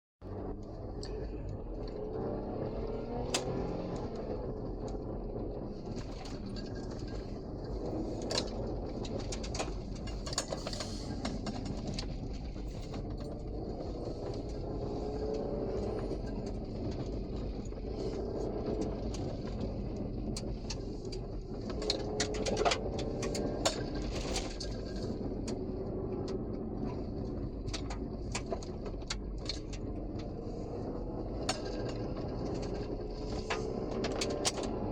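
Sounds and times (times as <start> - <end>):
engine revving: 0.2 - 34.9
tyre and road noise: 0.2 - 34.9
knocks and clatters: 2.9 - 34.9.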